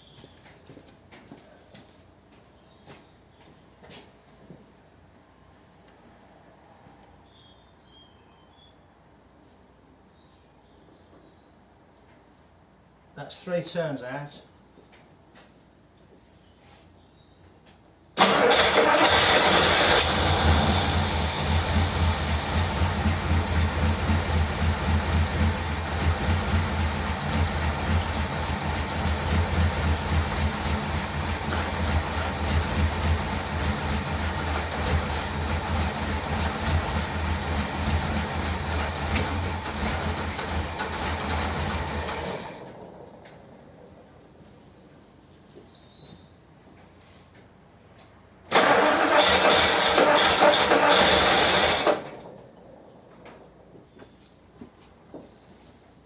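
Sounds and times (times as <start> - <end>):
car engine starting and idling: 18.2 - 44.4, 48.5 - 53.8.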